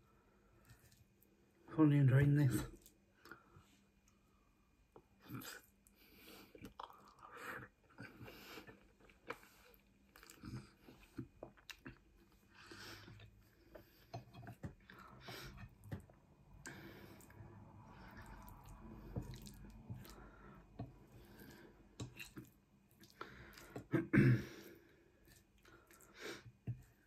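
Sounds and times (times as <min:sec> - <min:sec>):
person chewing: 0:06.4 - 0:24.0, 0:24.6 - 0:27.0.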